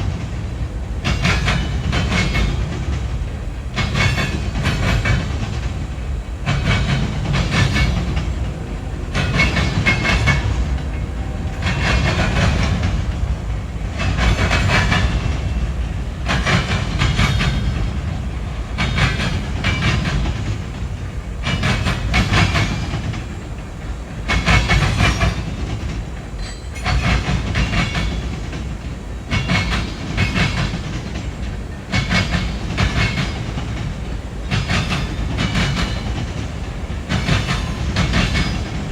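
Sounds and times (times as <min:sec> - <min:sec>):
freight train rumbling past: 0:00.0 - 0:38.9
wheels clattering over rail joints: 0:01.0 - 0:38.9.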